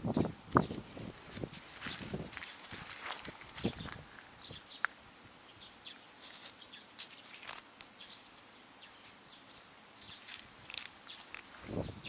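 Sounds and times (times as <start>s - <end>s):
soft rustles: 0.9s - 4.3s, 6.2s - 7.7s.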